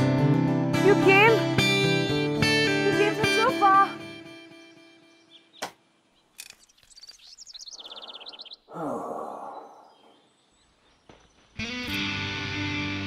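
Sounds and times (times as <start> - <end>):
small bird high chirps: 5.1 - 8.7
breathy falling sigh: 7.8 - 10.3.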